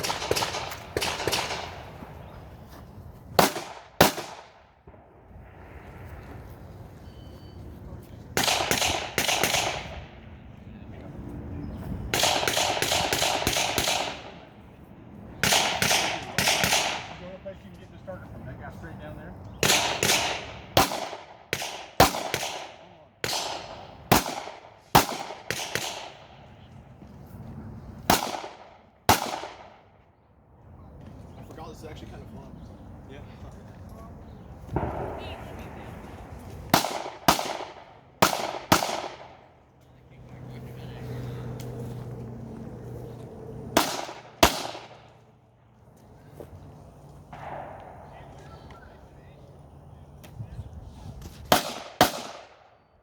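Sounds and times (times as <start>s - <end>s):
pistol shots with echo: 0.0s - 2.0s, 3.4s - 5.0s, 8.4s - 10.2s, 12.1s - 14.4s, 15.4s - 17.2s, 19.6s - 26.4s, 28.0s - 29.9s, 36.7s - 39.5s, 43.8s - 45.1s, 47.3s - 48.4s, 51.5s - 52.8s.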